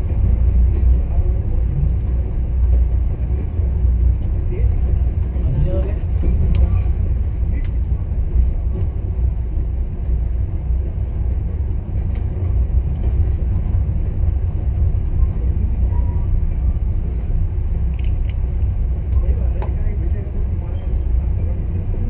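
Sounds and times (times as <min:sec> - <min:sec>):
train car rumbling on track: 0:00.0 - 0:22.0
faint track clicks: 0:06.2 - 0:06.8.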